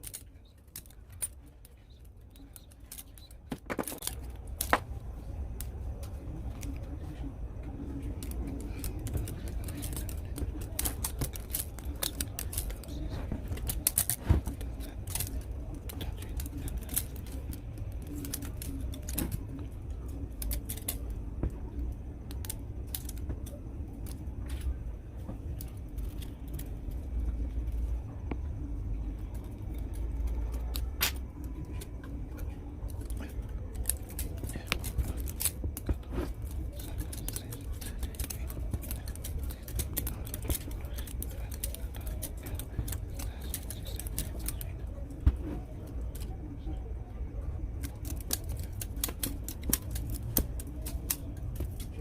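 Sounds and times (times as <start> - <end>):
steady low hum: 0.0 - 52.0
small tools clicking and snipping: 47.8 - 52.0.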